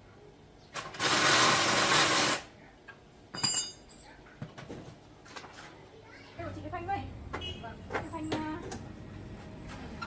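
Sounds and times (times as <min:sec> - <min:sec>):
loud even tool noise: 0:00.8 - 0:02.5
ringing metallic clink: 0:03.3 - 0:04.1.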